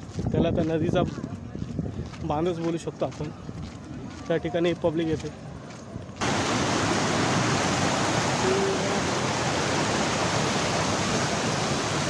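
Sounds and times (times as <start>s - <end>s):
river water rushing over dam: 6.2s - 12.0s.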